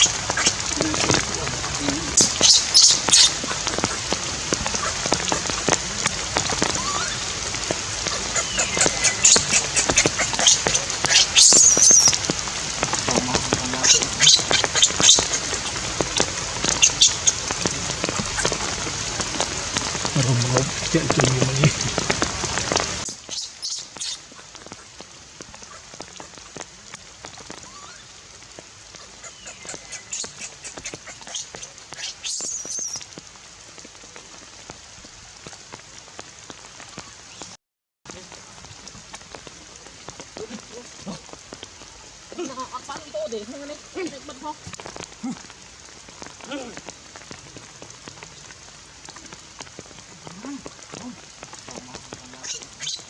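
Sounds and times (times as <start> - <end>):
rain pattering and dripping: 0.0 - 53.0
baby monkey squeaky cries: 2.2 - 3.3, 10.4 - 12.2
baby monkey crying: 8.4 - 12.2.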